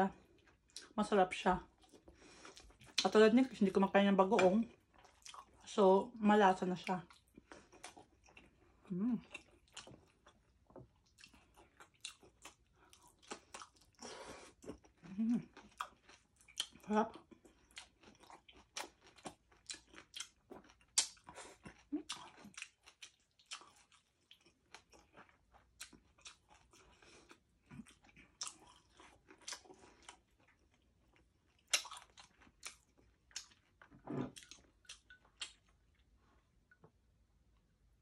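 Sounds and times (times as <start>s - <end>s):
chewing and biting crispy pork: 4.3s - 5.7s, 6.8s - 36.1s
wet mouth smacks and crunches: 18.7s - 21.3s, 31.6s - 33.6s.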